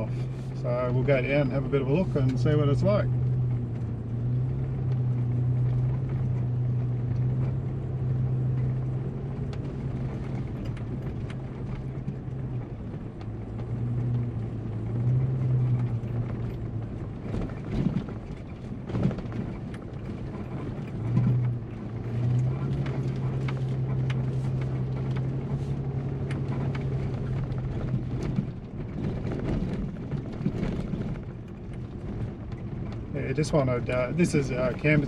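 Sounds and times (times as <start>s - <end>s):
low engine drone: 0.0s - 35.0s
knocks and rattles from rough ground: 8.6s - 35.0s.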